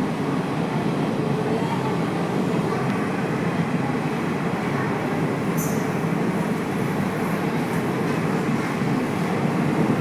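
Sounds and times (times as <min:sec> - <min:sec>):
train rumbling: 0:02.1 - 0:10.0.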